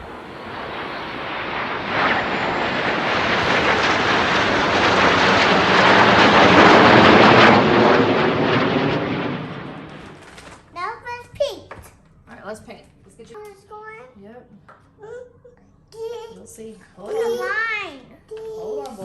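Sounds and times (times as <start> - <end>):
airplane flying overhead: 0.0 - 10.7.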